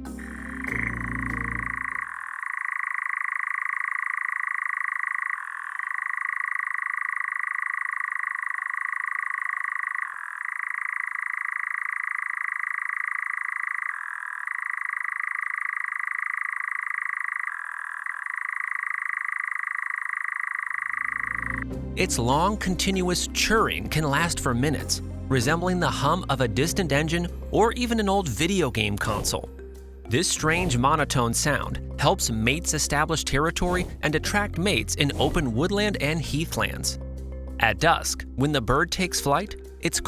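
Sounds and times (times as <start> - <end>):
nightjar churring trill: 0.0 - 40.0.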